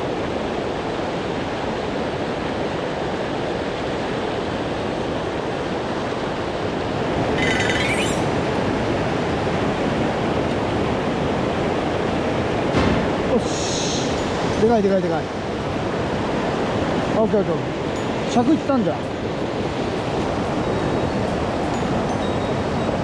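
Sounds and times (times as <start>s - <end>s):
high-pitched buzz: 7.4s - 8.5s.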